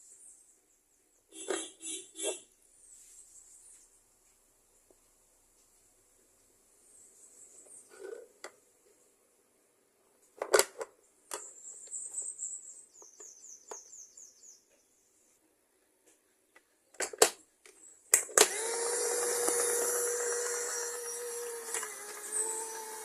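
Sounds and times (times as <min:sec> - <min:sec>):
plastic clicks and rattling: 0:10.3 - 0:11.5, 0:16.9 - 0:22.9
small vacuum motor running: 0:18.4 - 0:23.0.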